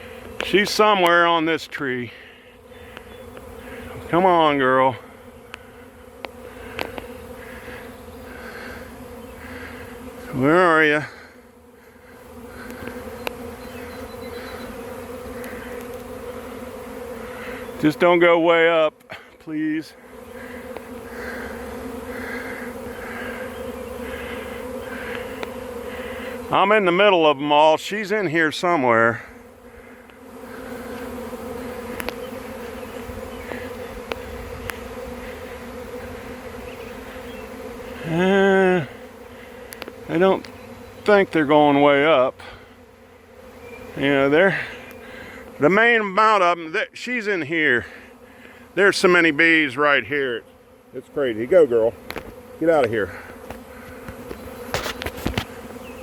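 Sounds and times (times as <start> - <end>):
bee swarm buzzing: 0.0 - 56.0
faint clicks: 32.0 - 32.2, 39.7 - 41.2.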